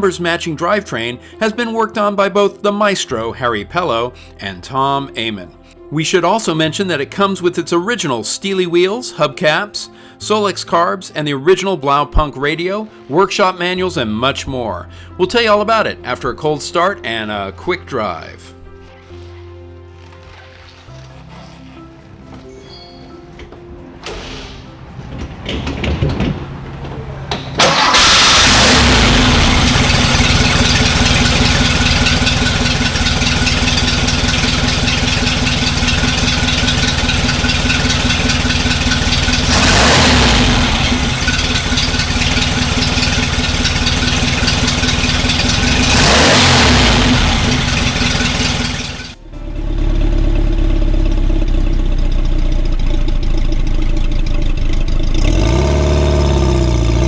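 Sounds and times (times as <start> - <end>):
car engine starting and running: 23.3 - 57.0
engine throttle blips: 23.4 - 57.0.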